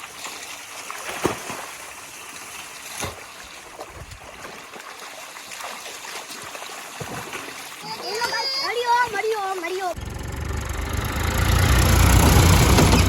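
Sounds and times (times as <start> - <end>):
sharp knocks or splashes: 0.8 - 2.0, 2.8 - 9.4
water rushing: 3.2 - 13.0.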